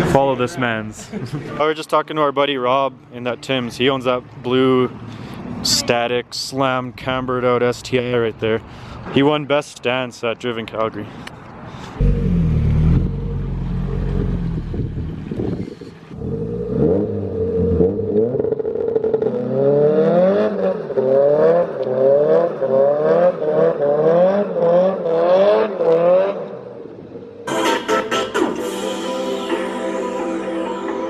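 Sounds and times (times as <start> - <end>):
car engine revving: 12.0 - 26.6.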